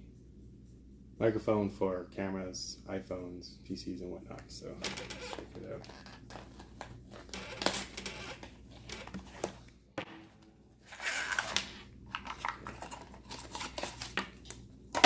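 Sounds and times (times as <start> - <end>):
packaging rustling: 10.8 - 15.0.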